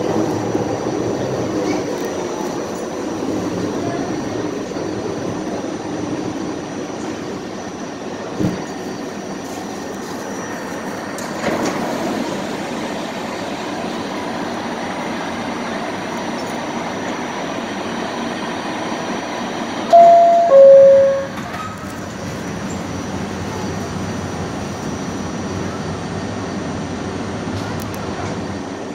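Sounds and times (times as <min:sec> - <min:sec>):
subway rail rumble: 0:00.0 - 0:28.9
two-tone descending door chime: 0:19.9 - 0:21.8.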